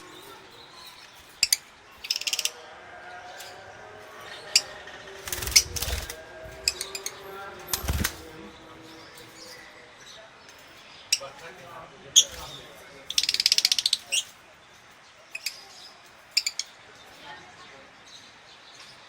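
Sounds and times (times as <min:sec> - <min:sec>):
wing flapping: 0:05.2 - 0:06.9, 0:07.6 - 0:08.4.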